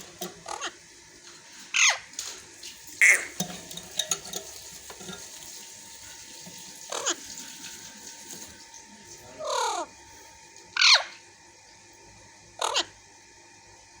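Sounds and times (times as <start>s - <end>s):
parrots squawking: 0.0s - 0.8s, 1.7s - 2.1s, 3.0s - 4.4s, 6.8s - 7.5s, 9.3s - 10.0s, 10.8s - 11.2s, 12.6s - 13.0s.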